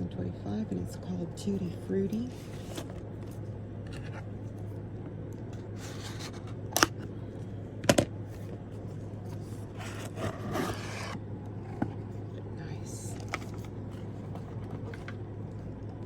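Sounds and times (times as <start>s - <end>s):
cardboard box rustling and scraping: 2.2s - 4.3s, 5.8s - 6.6s, 8.4s - 12.2s, 13.2s - 15.2s.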